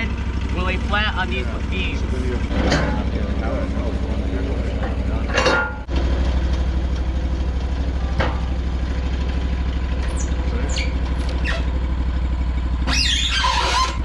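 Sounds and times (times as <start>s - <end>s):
sawmill engine idling: 0.0s - 14.0s
short high squeaks: 10.0s - 11.8s, 12.8s - 14.0s.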